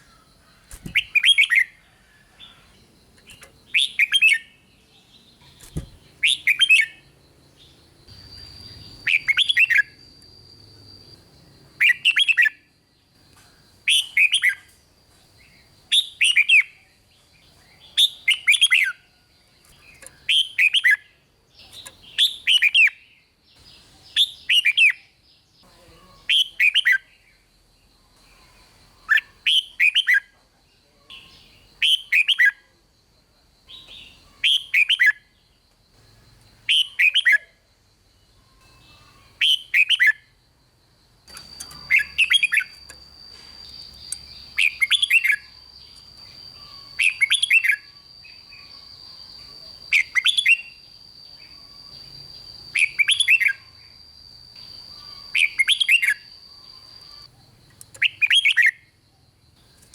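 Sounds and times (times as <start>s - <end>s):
bird whistled song: 0.0s - 12.7s, 13.6s - 14.8s, 15.5s - 25.5s, 26.2s - 27.4s, 28.0s - 30.3s, 31.1s - 32.7s, 33.7s - 35.4s, 36.1s - 37.6s, 38.3s - 40.3s, 41.3s - 58.9s
faint steady high tone: 0.0s - 24.4s, 25.1s - 59.9s.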